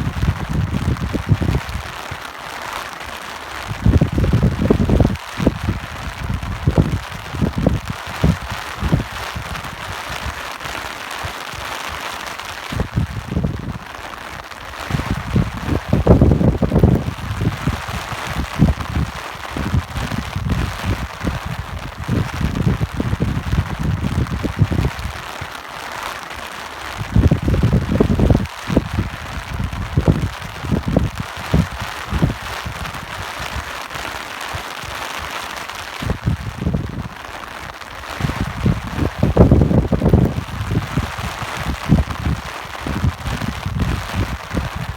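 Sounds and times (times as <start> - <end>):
gusty wind rumbles: 0.0 - 2.0, 3.6 - 10.4, 12.6 - 13.9, 14.7 - 25.3, 27.0 - 33.7, 36.0 - 37.3, 38.0 - 44.9
steady rain hiss: 0.0 - 44.9.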